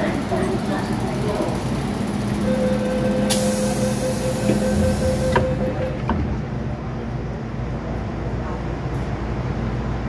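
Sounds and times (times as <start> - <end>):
electric train humming: 0.0 - 10.0
loud hiss: 3.3 - 5.3.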